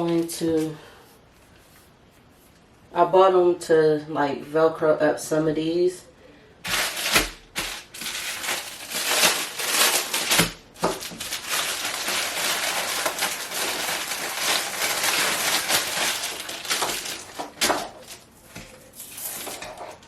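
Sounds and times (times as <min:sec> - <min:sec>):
packaging crinkling and rasping: 0:06.6 - 0:20.0.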